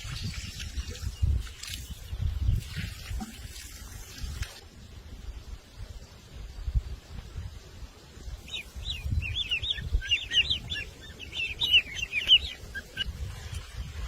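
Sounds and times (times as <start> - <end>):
bird chirping song: 0.8 - 2.8, 8.3 - 14.0.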